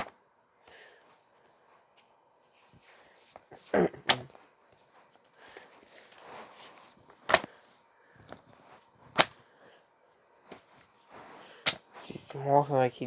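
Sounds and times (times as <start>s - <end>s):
paper and plastic rustling: 1.1s - 9.6s, 10.4s - 12.4s
comic books slapping down: 3.7s - 4.4s, 7.1s - 7.6s, 9.1s - 9.4s, 11.5s - 12.0s.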